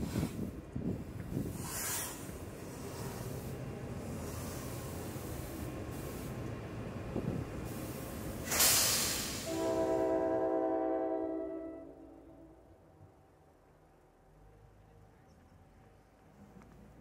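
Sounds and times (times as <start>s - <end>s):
train rumbling on rails: 0.0s - 17.0s
loud burst of hissing: 1.3s - 6.5s, 7.6s - 9.9s
multi-tone train horn: 9.3s - 12.8s.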